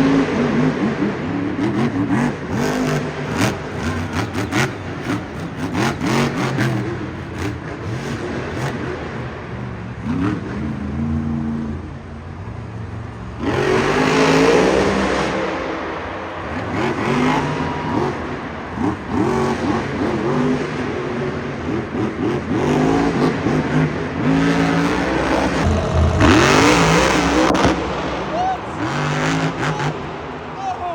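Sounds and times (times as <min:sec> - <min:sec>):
broad rush of noise: 0:10.7 - 0:19.2, 0:24.5 - 0:30.9
truck engine revving hard: 0:22.0 - 0:30.6.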